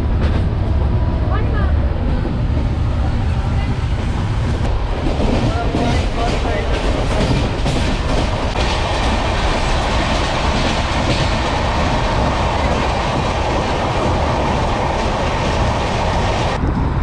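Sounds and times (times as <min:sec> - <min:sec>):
train rumbling: 0:00.0 - 0:17.0
wheels clattering over rail joints: 0:03.8 - 0:16.6.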